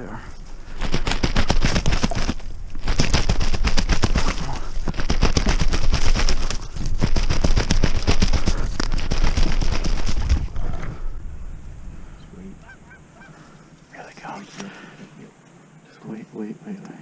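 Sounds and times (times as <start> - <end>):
geese honking: 12.5 - 13.8.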